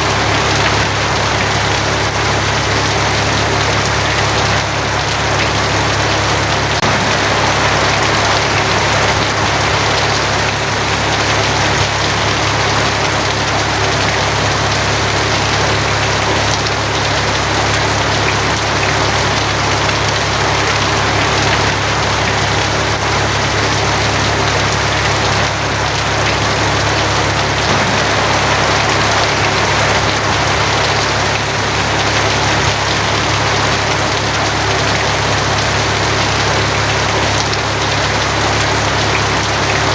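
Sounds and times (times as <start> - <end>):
heavy rain on a tin roof: 0.0 - 39.9
low hum: 6.8 - 9.8, 27.5 - 33.0.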